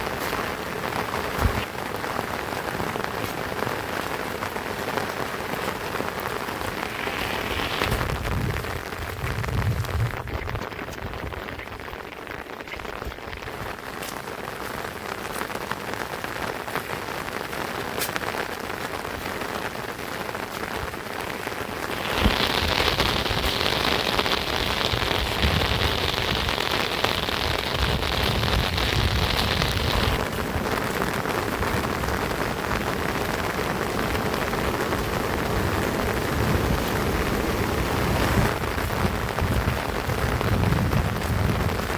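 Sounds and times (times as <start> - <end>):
rain falling: 0.0 - 41.9.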